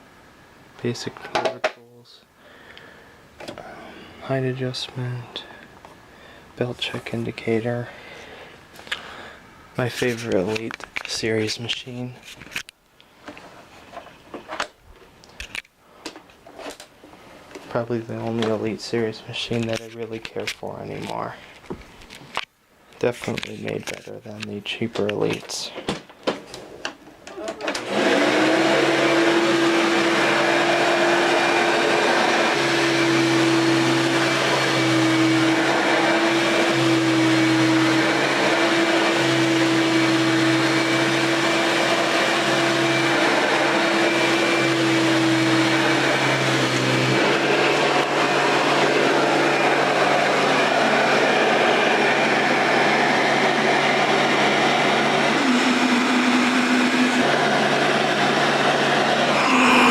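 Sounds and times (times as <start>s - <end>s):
upright vacuum cleaner running: 27.4s - 59.9s.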